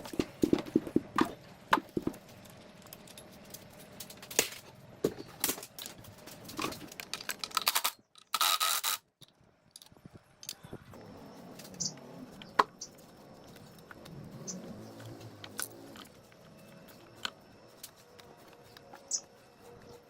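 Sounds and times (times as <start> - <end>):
metal parts clinking and scraping: 5.4 - 9.0.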